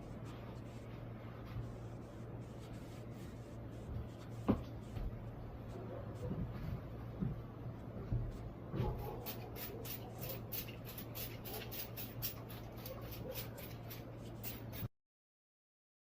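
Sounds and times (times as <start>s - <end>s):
spray bottle hissing sprays: 9.2s - 14.9s.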